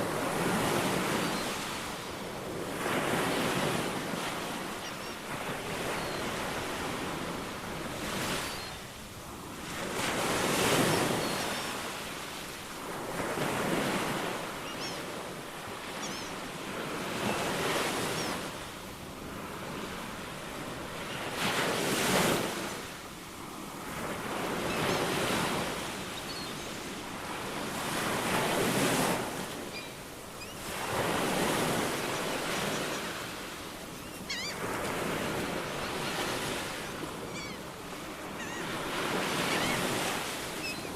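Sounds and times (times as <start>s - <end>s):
faint bird chirps: 4.8s - 5.3s, 14.6s - 15.1s, 15.9s - 16.5s, 26.1s - 26.8s, 29.6s - 30.9s, 34.0s - 34.6s, 35.8s - 40.9s.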